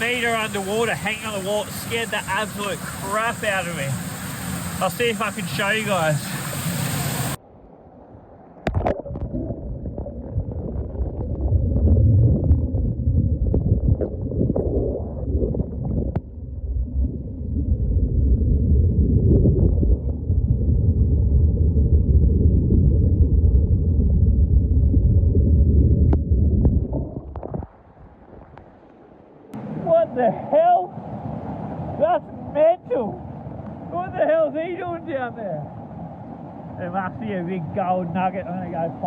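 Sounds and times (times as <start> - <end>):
muffled underwater water rumble: 0.0 - 34.2, 35.4 - 39.0
underwater knocks: 26.0 - 27.8.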